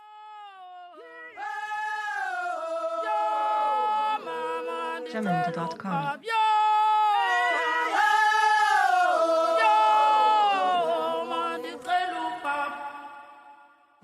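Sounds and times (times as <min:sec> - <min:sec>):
voices singing sliding notes: 0:07.2 - 0:13.2.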